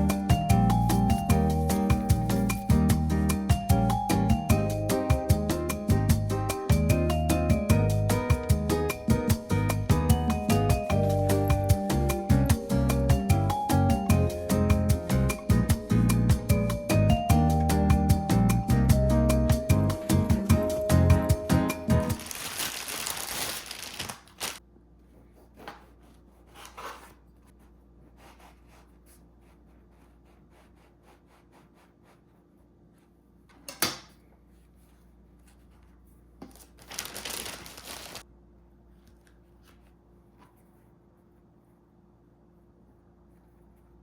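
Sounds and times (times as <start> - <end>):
packaging rustling and crinkling: 22.2 - 24.6, 36.4 - 38.2.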